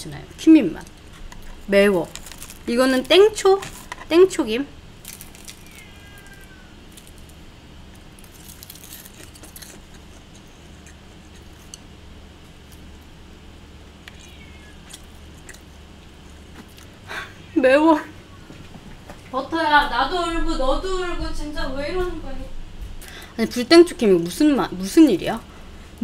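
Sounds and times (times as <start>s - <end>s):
low room hum: 0.0s - 26.0s
crunchy chewing: 0.8s - 4.1s, 5.0s - 17.1s.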